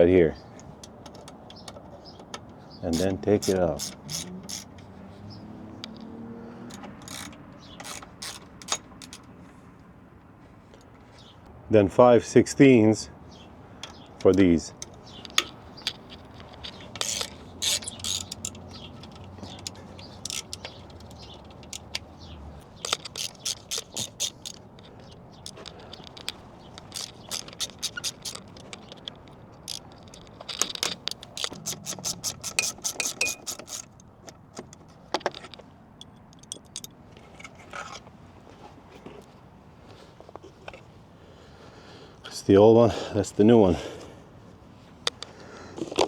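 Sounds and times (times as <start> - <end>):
metal tools scraping and knocking: 0.6 - 4.9, 6.7 - 9.4, 13.8 - 38.1
socket ratchet clicking: 0.8 - 9.3, 13.8 - 37.0.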